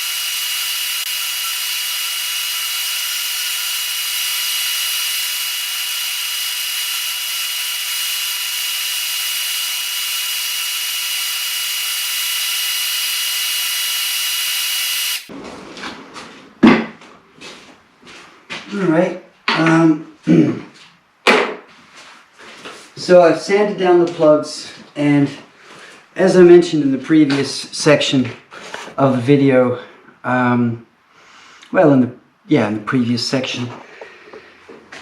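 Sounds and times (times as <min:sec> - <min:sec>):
electric sander on wood: 0:00.0 - 0:15.3.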